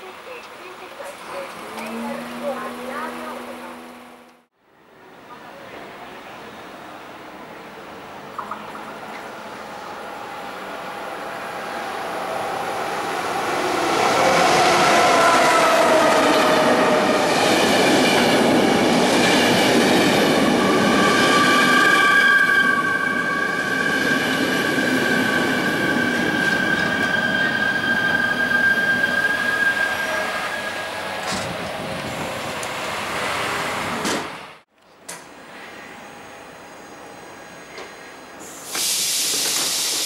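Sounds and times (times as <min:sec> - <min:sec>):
train running through station: 0:00.0 - 0:40.0
wheels squealing: 0:20.5 - 0:31.1.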